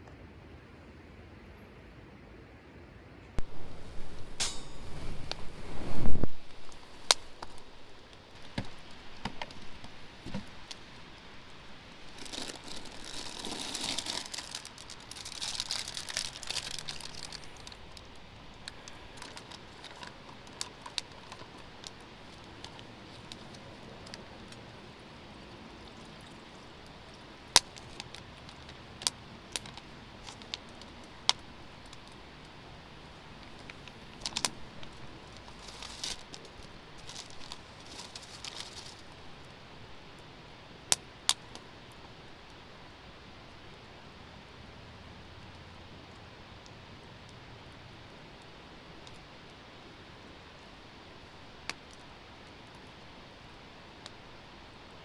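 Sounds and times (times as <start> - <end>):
rustling and crinkling: 3.4 - 40.3.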